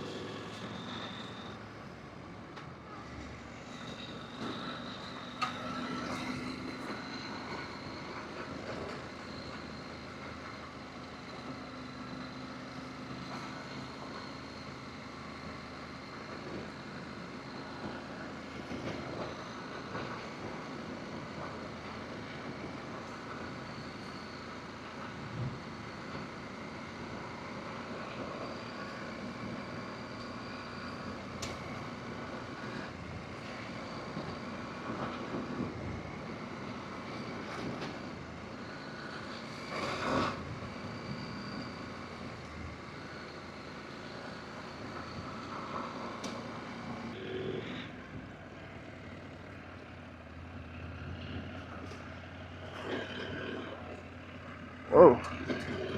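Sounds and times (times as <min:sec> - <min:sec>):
road noise: 0:00.0 - 0:55.9.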